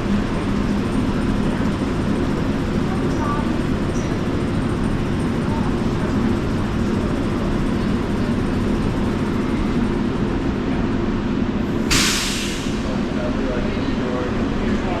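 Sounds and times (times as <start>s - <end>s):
tram rumbling and humming: 0.0s - 15.0s
sudden hiss: 11.9s - 12.9s.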